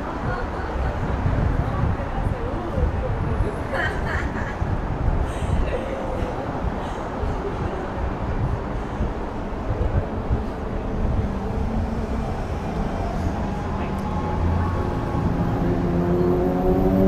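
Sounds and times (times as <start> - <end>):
street traffic rumbling: 0.0 - 17.0
approaching vehicle engine hum: 8.7 - 17.0.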